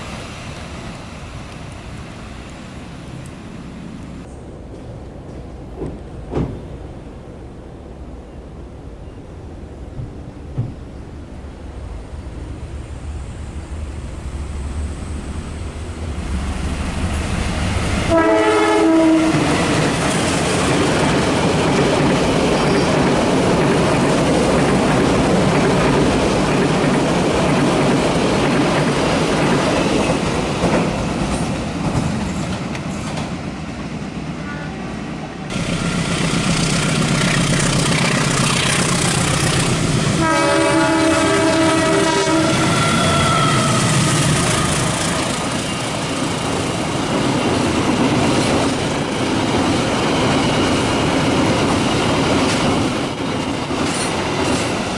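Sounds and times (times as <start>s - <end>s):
train rumble: 0.0s - 54.9s
wheel and rail noise: 0.0s - 54.9s
train horn: 18.1s - 19.8s, 40.2s - 45.1s.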